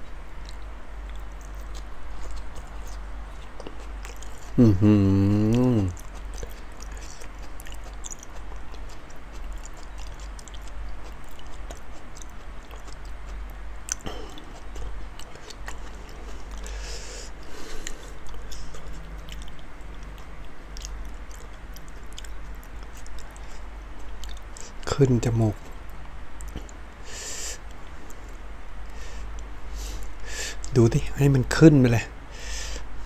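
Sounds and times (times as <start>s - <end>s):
low steady hum: 0.0s - 33.0s
wet chewing and mouth smacks: 0.4s - 4.6s, 5.4s - 24.8s, 25.6s - 26.9s.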